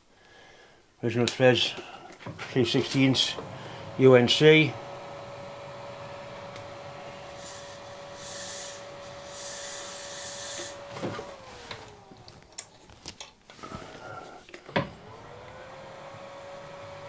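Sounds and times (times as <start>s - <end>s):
milling machine spindle whine: 2.2s - 12.5s, 14.7s - 17.0s
hissy cutting noise: 2.3s - 12.5s.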